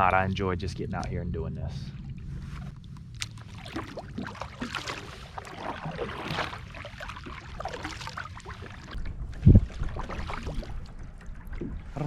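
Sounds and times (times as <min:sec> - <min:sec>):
paddle splashing in water: 0:03.2 - 0:12.0
wind rumble on microphone: 0:08.5 - 0:12.0.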